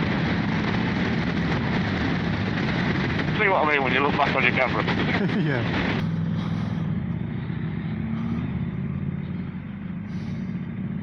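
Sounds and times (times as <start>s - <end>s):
wind noise: 0.0s - 8.8s
motorcycle engine cruising: 0.0s - 11.0s
road noise: 0.0s - 11.0s.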